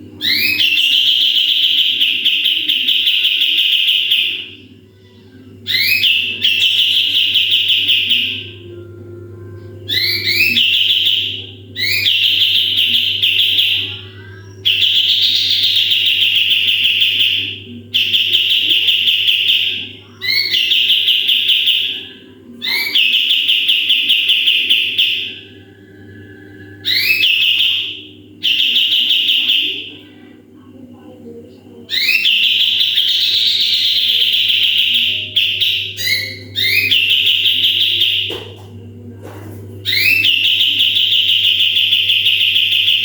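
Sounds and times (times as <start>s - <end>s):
faint low hum: 0.0s - 43.0s
songbird singing rapid trills: 9.9s - 25.5s.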